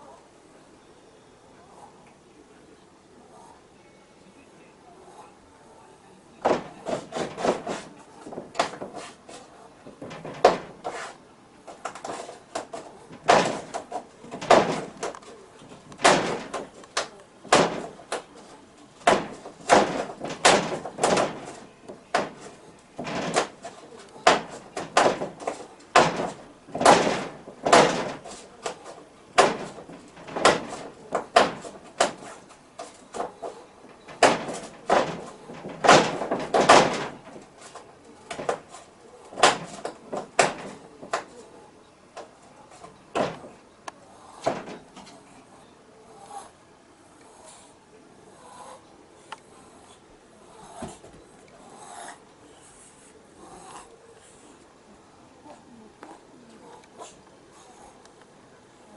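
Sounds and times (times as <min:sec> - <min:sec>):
knocking and rattling thumps: 0:06.4 - 0:41.6, 0:42.2 - 0:43.7, 0:44.4 - 0:45.2.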